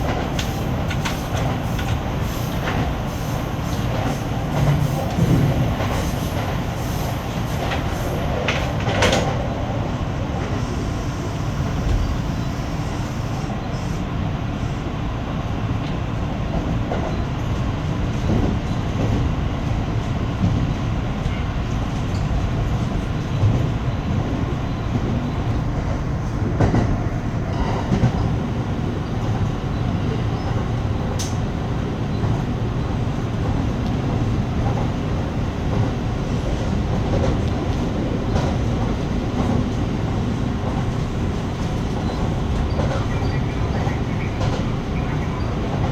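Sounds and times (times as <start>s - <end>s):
clacks over rail joints: 0.0s - 3.0s, 26.4s - 28.4s, 40.6s - 44.8s
train wheels rumbling on rail: 0.0s - 45.9s.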